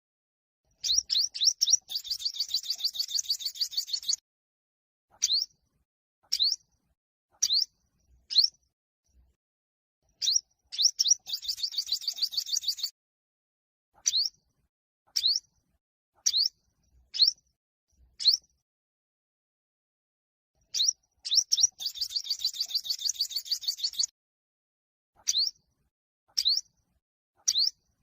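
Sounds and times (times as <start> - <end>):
bird singing rising notes and trill: 0.8 - 4.2, 10.2 - 12.9, 14.0 - 14.4, 18.2 - 18.4, 20.7 - 24.1, 25.3 - 25.6, 26.4 - 26.7, 27.5 - 27.8.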